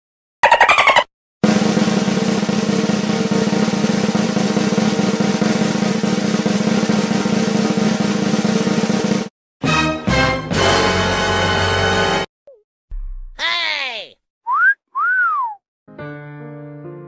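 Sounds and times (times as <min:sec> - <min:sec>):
snare drum roll: 0:01.4 - 0:09.3.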